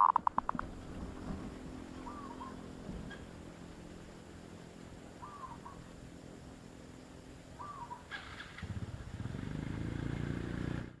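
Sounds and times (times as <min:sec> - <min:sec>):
dove cooing: 0:00.0 - 0:00.8, 0:02.0 - 0:03.2, 0:05.2 - 0:05.9, 0:07.6 - 0:08.9
low vehicle rumble: 0:00.0 - 0:11.0.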